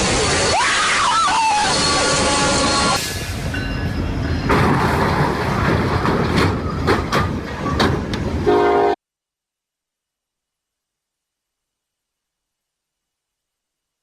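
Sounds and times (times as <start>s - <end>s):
train rumbling past: 1.7s - 9.0s
train horn: 8.4s - 9.0s.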